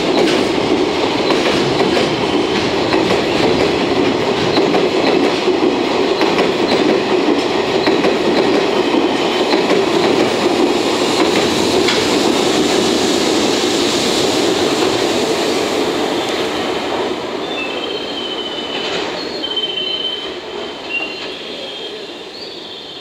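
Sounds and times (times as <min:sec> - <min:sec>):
freight train rumbling past: 0:00.0 - 0:23.0
train wheels squealing: 0:17.4 - 0:23.0.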